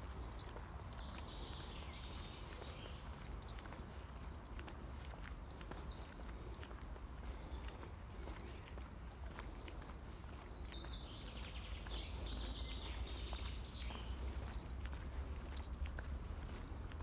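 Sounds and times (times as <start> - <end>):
footsteps on dirt path: 0.0 - 17.0
songbird singing: 0.0 - 17.0.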